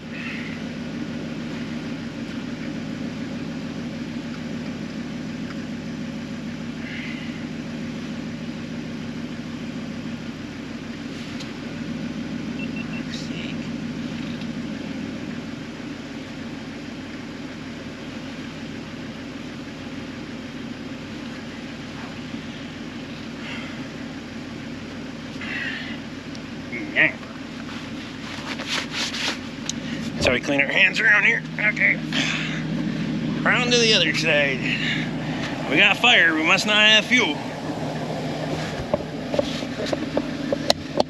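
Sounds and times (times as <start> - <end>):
tractor engine cranking: 14.1 - 14.6.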